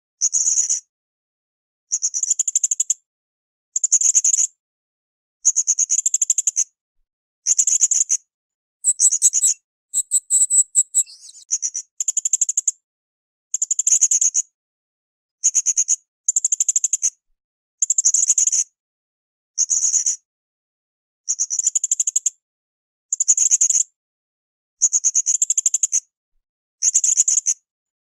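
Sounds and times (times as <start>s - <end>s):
parrot chattering trills: 8.9s - 11.4s.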